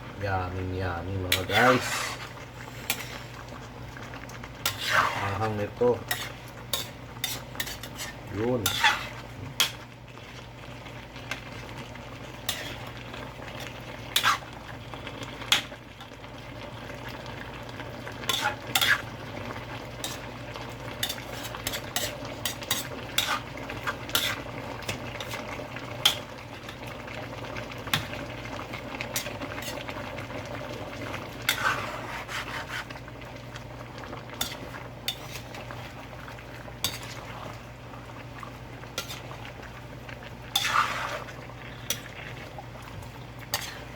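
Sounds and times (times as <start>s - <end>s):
curry simmering: 0.0s - 43.9s
spoon scraping cooking pot: 1.3s - 3.3s, 4.6s - 9.8s, 12.4s - 12.9s, 13.6s - 14.4s, 18.2s - 19.1s, 21.0s - 25.4s, 31.4s - 33.0s, 34.4s - 35.7s, 39.0s - 39.3s, 40.5s - 42.2s, 43.5s - 43.9s.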